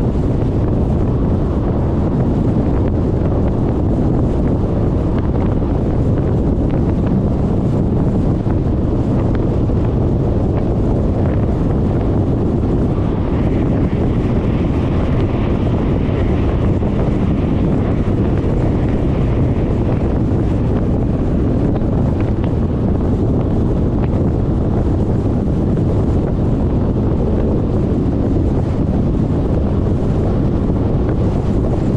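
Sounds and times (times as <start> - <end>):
road noise: 0.0 - 31.9
wind buffeting microphone: 0.0 - 31.9.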